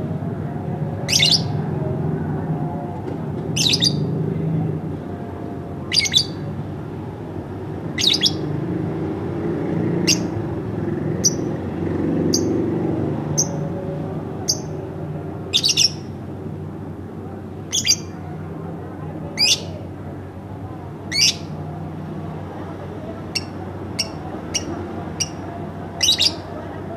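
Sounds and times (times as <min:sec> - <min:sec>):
lovebird chirping: 0:01.1 - 0:01.5, 0:05.9 - 0:06.4, 0:08.0 - 0:08.4, 0:15.5 - 0:16.1, 0:17.7 - 0:18.1, 0:21.1 - 0:21.5, 0:23.3 - 0:25.4, 0:26.0 - 0:26.4.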